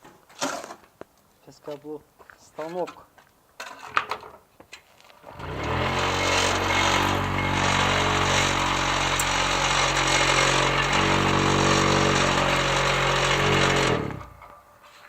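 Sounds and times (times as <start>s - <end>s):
block making machine running: 5.4s - 14.4s.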